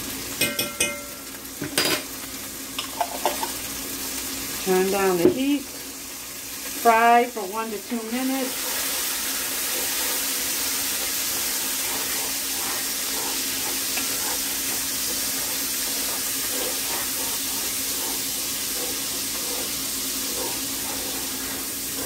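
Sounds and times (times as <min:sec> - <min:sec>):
garlic sizzling in a skillet: 0:00.0 - 0:22.0
light stirring: 0:07.9 - 0:22.0.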